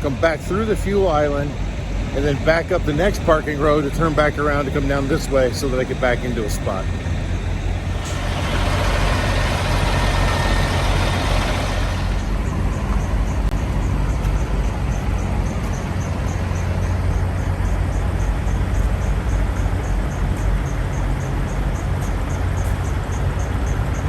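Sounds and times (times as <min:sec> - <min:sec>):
rushing noise: 0:00.0 - 0:20.4
diesel truck engines idling: 0:00.0 - 0:24.0.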